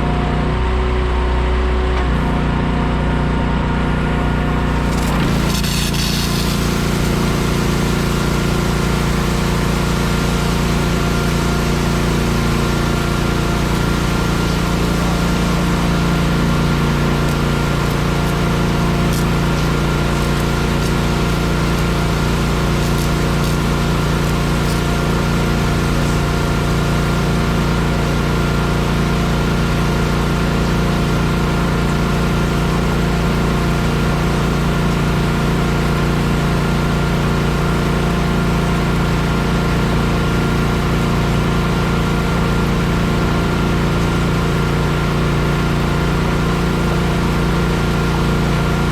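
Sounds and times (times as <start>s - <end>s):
engine running steadily: 0.0s - 48.9s
thin steady whine: 1.7s - 36.2s.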